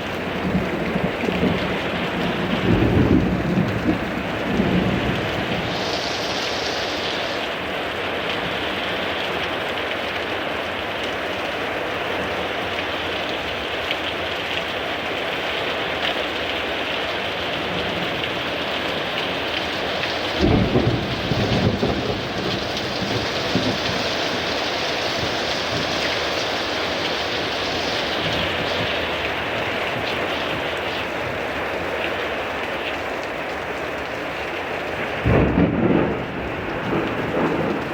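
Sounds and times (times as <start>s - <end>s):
heavy rain pouring: 0.0s - 37.9s
low rumble of thunder: 0.3s - 6.2s, 20.2s - 26.3s, 35.1s - 37.9s.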